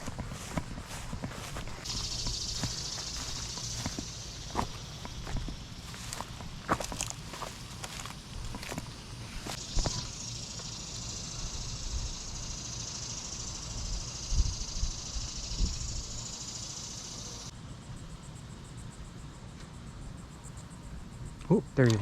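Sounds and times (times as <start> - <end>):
high-pitched insect buzzing: 0.0 - 17.5.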